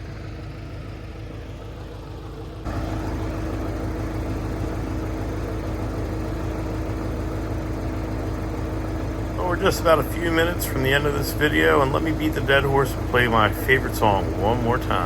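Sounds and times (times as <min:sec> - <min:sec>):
heavy equipment engine running: 0:00.0 - 0:15.0.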